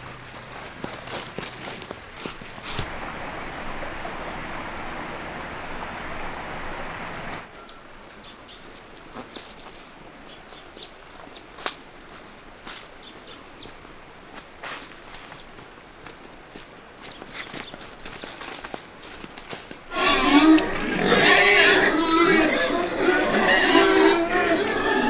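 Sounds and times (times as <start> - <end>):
footsteps: 0.0 - 3.2, 8.8 - 20.9
dense rustling hiss: 0.0 - 25.0
insects buzzing: 0.0 - 25.0.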